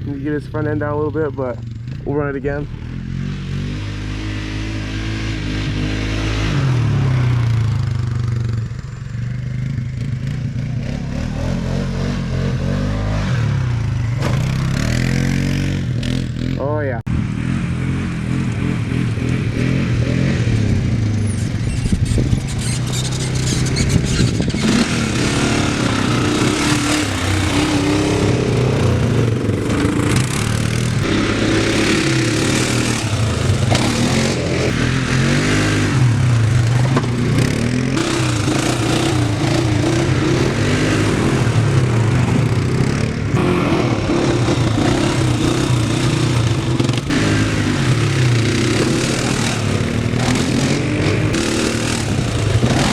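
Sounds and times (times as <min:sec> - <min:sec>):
dirt bike engine revving: 0:00.0 - 0:08.8, 0:09.4 - 0:52.9
wind rush: 0:18.8 - 0:22.9.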